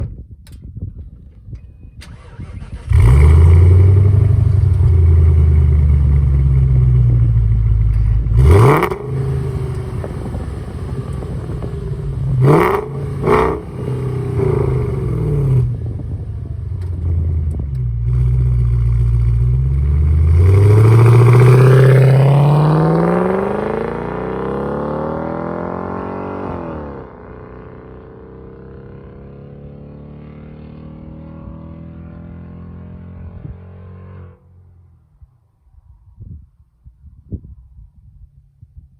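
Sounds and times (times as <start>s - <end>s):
loud unmuffled car engine revving: 2.8s - 28.2s.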